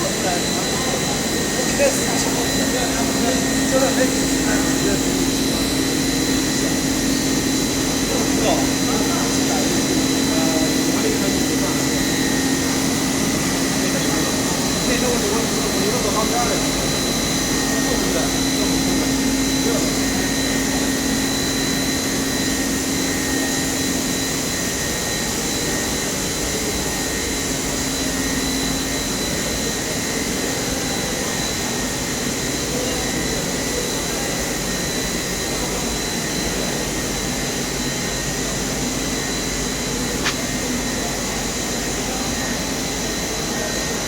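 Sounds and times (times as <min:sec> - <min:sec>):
machine whine over hiss: 0:00.0 - 0:44.0
sharp click: 0:40.2 - 0:40.5.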